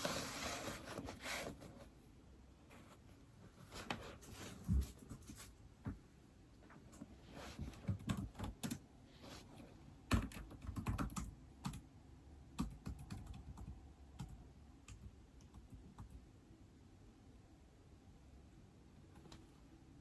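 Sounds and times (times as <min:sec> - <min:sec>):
keyboard typing: 0:07.7 - 0:08.8, 0:10.1 - 0:11.8, 0:12.6 - 0:16.2.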